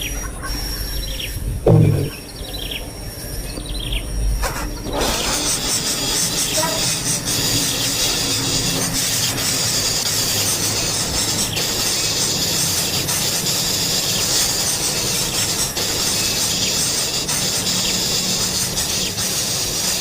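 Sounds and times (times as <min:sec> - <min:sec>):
loud knock: 0:01.6 - 0:02.2.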